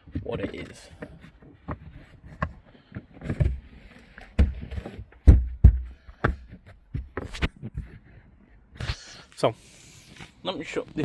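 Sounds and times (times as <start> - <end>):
knocks and thumps in car boot: 0.0 - 7.8.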